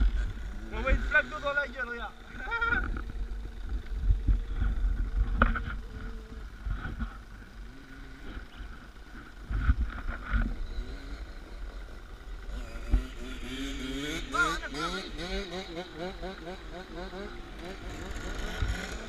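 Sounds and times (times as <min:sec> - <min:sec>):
dirt bike engine rumbling: 0:00.0 - 0:19.0.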